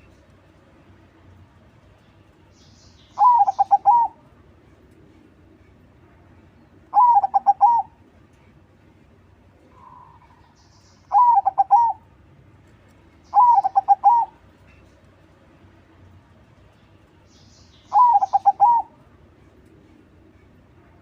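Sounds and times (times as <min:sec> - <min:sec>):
dove cooing: 0:03.2 - 0:04.2, 0:06.9 - 0:08.0, 0:11.1 - 0:12.1, 0:13.3 - 0:14.4, 0:17.9 - 0:19.0.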